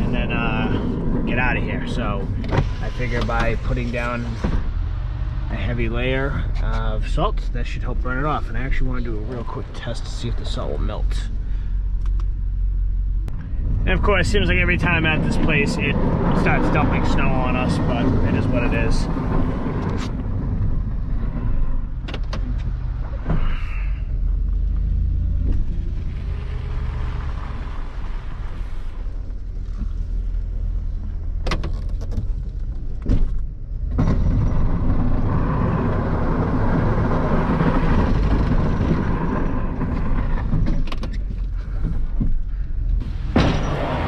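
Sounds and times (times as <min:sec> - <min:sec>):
plow scraping snow: 0:14.0 - 0:20.4, 0:34.1 - 0:40.6, 0:43.0 - 0:44.0.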